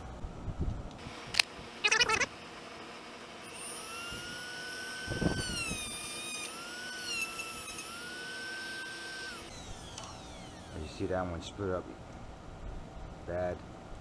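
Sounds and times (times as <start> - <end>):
rotary power tool whining: 1.0 - 10.9.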